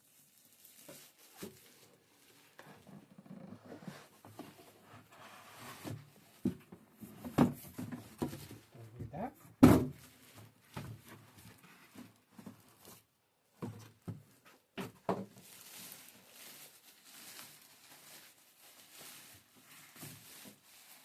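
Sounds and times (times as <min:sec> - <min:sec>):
cardboard rustling: 0:09.8 - 0:21.0.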